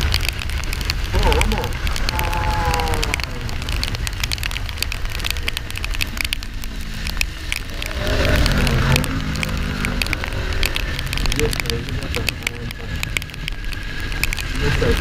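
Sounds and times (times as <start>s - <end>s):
crackle of clicks: 0.0s - 15.0s
motorcycle engine riding: 0.0s - 15.0s
wind rumbling on microphone: 0.0s - 15.0s.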